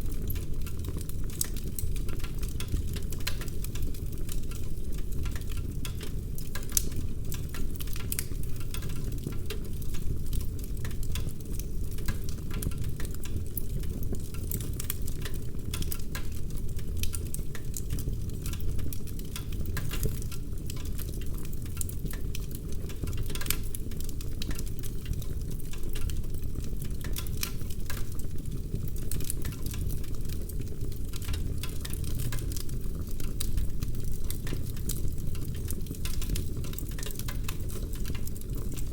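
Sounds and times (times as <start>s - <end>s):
low rumble of flame: 0.0s - 38.9s
wood fire crackling and popping: 0.0s - 38.9s.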